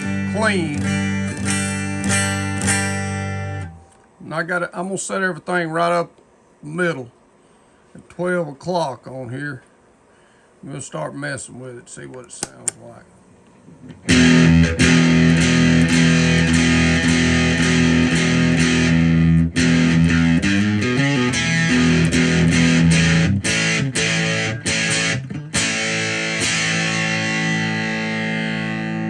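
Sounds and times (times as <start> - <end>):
overdriven electric guitar chords: 0.0 - 4.0, 14.0 - 29.0.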